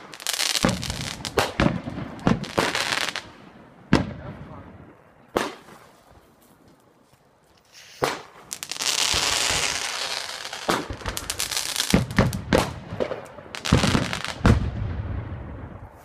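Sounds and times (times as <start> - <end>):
fireworks bangs and crackling: 0.0 - 5.9, 7.7 - 15.9
fireworks hissing sparks: 7.6 - 12.1.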